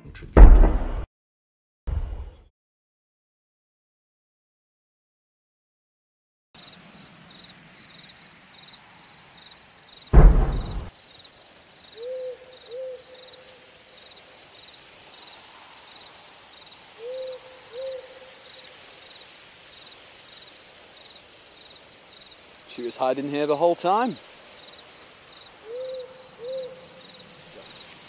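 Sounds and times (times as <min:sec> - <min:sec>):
loud cannon boom: 0:00.4 - 0:01.1, 0:10.2 - 0:10.9
crickets chirping: 0:06.6 - 0:28.0
owl hooting: 0:12.0 - 0:13.4, 0:17.0 - 0:18.3, 0:25.6 - 0:27.8.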